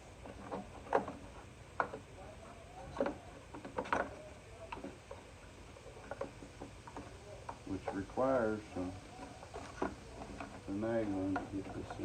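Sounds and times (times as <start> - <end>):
light clicks and knocks: 2.8 - 12.0.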